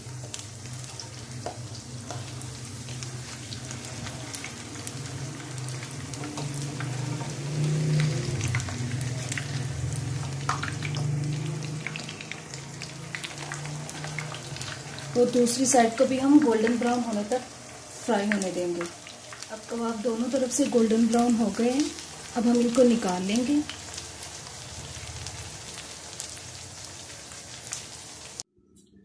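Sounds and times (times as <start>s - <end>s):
spatula flipping food: 0.0s - 15.2s
food sizzling in oil: 0.0s - 28.5s.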